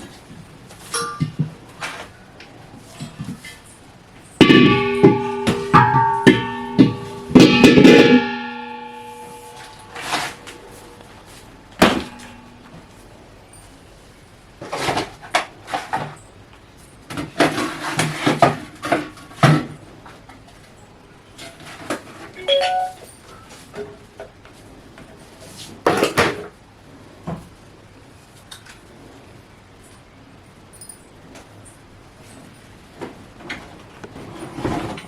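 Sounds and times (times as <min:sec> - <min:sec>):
metallic clink: 0:04.2 - 0:11.1.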